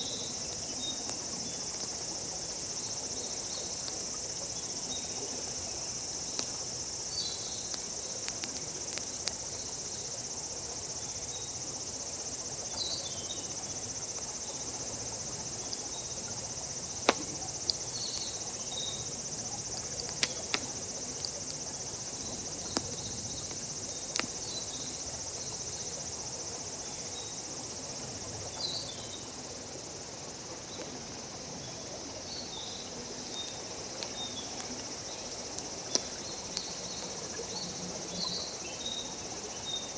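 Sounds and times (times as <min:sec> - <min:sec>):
insects droning: 0:00.0 - 0:39.9
campfire crackling: 0:06.0 - 0:10.7, 0:14.7 - 0:25.8, 0:33.5 - 0:37.4.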